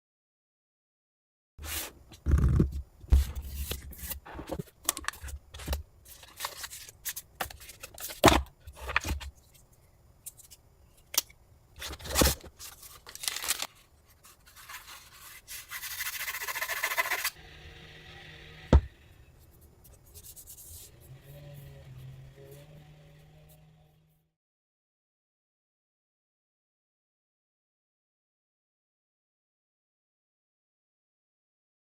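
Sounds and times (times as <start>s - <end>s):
packaging rustle: 11.8s - 15.5s.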